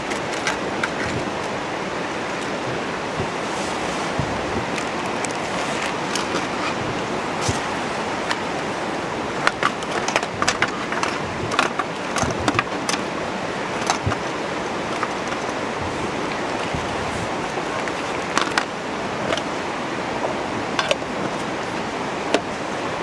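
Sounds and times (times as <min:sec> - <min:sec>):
flowing water rushing: 0:00.0 - 0:23.0
sharp clicks and knocks: 0:13.7 - 0:18.7.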